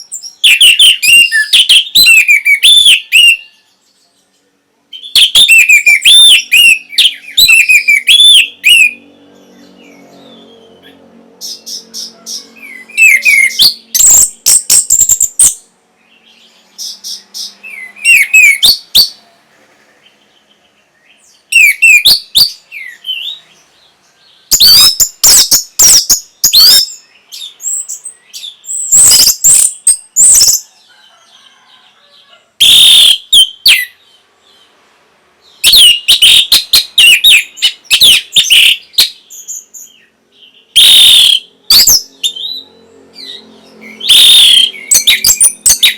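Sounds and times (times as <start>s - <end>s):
thrush singing whistles: 0.0s - 3.7s, 4.9s - 9.0s, 11.4s - 19.2s, 21.1s - 23.5s, 24.5s - 30.7s, 32.6s - 34.0s, 35.6s - 45.9s.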